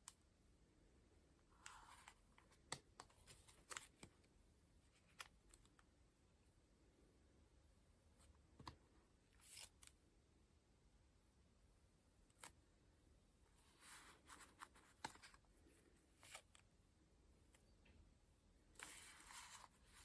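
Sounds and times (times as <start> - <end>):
pages turning soft swishes: 18.8 - 20.0.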